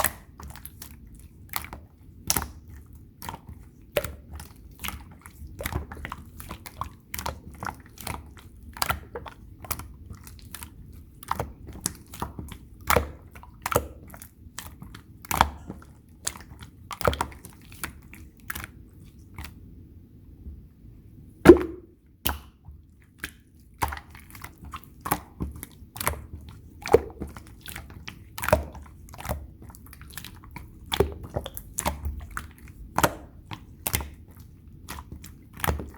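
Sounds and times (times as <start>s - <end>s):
slime squishing with wet pops: 0.0s - 20.6s, 21.5s - 35.9s.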